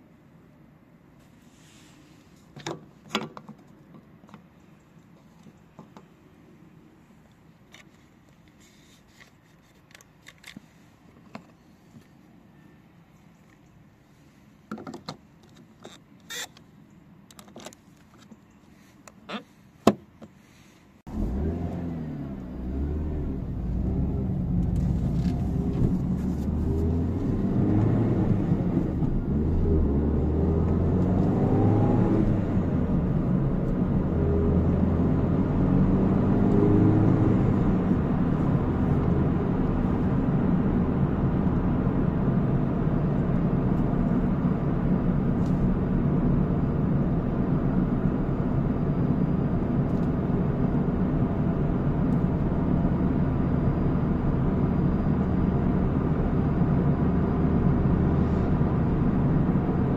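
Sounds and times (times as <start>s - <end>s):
car engine running: 21.1s - 59.9s.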